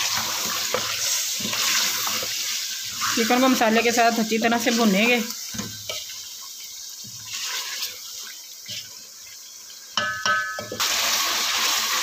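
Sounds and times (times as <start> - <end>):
chicken sizzling and bubbling: 0.0 - 12.0
wooden spoon knocking metal pot: 10.0 - 10.8.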